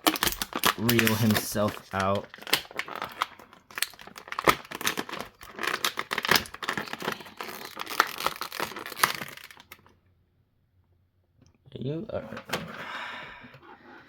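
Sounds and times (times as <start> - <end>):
plastic packaging crinkling and tearing: 0.0 - 9.9.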